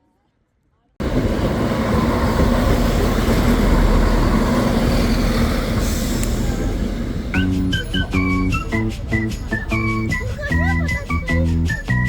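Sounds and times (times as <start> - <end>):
train wheels on rails: 1.0 - 12.0
jingly music: 7.4 - 12.0.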